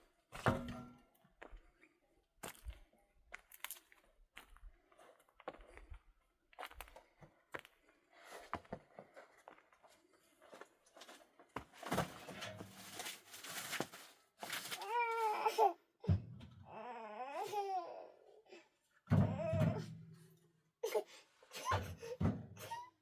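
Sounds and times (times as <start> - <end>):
small child whimpering: 14.8 - 20.0, 20.8 - 23.0.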